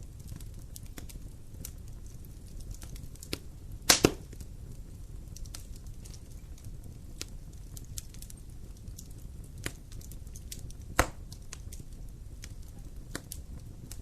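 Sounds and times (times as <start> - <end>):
fire rumbling and crackling: 0.0 - 14.0
loud fire pop: 3.8 - 4.4, 10.8 - 11.2.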